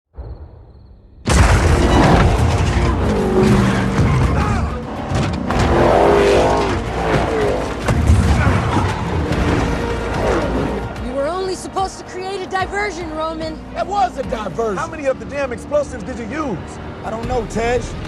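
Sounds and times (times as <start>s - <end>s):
dramatic score music: 1.2s - 18.0s
tyres skidding: 1.4s - 18.0s
car engines revving: 1.6s - 18.0s.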